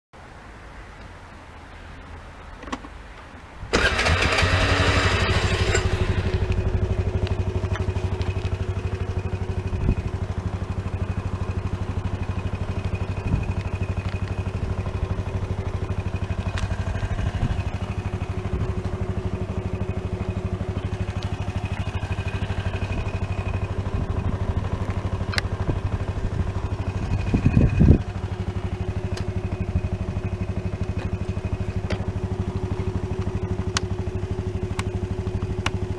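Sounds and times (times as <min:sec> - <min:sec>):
electric starter cranking: 0:03.7 - 0:07.0
scooter engine starting and idling: 0:03.7 - 0:35.9
click: 0:29.1 - 0:29.3.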